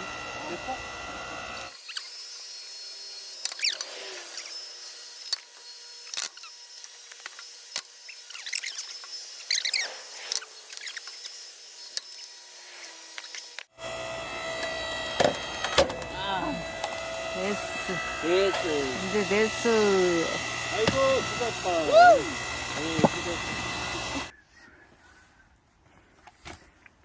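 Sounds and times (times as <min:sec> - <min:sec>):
log squealing and cracking: 0:03.5 - 0:04.6, 0:08.0 - 0:11.3.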